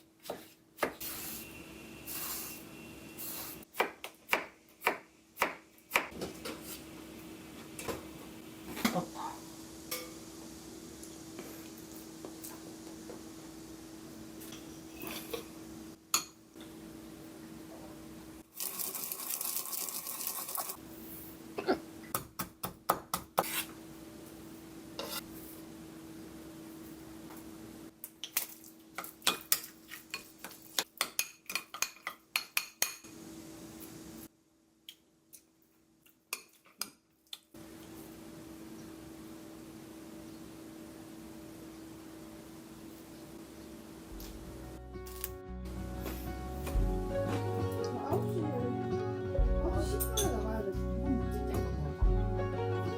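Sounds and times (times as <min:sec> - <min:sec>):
hiss of noise: 0:01.0 - 0:03.7.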